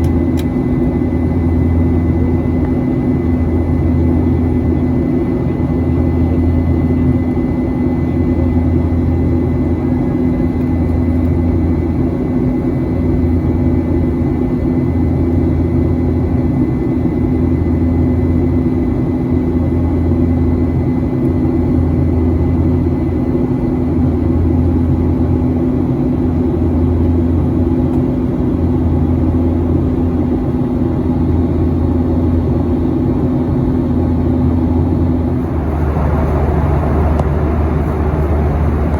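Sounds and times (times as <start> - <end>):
airplane cabin engine rumble: 0.0 - 38.9
faint steady whine: 34.4 - 38.9.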